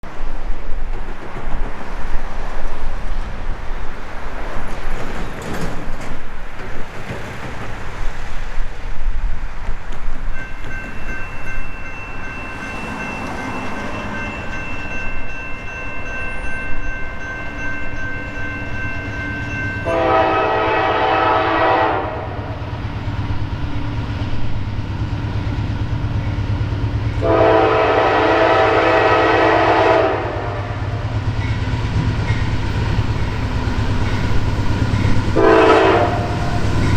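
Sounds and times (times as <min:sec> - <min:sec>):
diesel locomotive rumbling: 0:00.0 - 0:36.9
train air horn blasts: 0:19.8 - 0:22.6, 0:27.2 - 0:31.0, 0:35.3 - 0:36.6.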